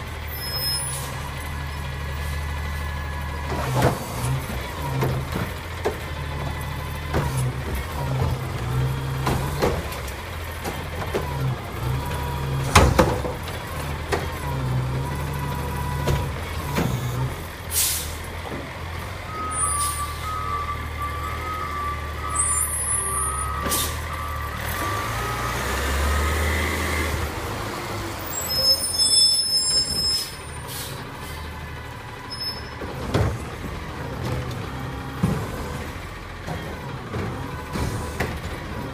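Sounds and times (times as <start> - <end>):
diesel engine running: 0.0 - 38.9
reversing alarm beeps: 19.3 - 25.4.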